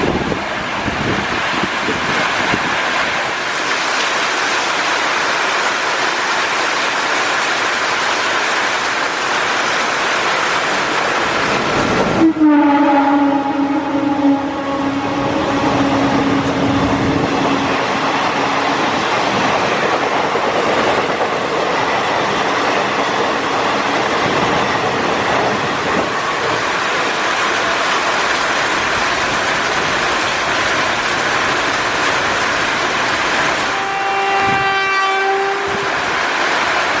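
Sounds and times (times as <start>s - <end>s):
heavy rain: 0.0s - 37.0s
train passing: 0.0s - 37.0s
train horn: 12.1s - 18.7s, 33.6s - 36.0s.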